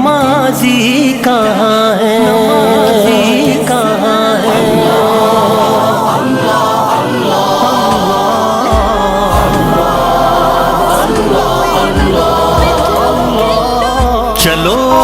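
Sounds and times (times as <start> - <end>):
chorus singing wordless melody: 0.0 - 15.0
low thumps: 8.8 - 13.1
deep bass drone: 8.8 - 14.2.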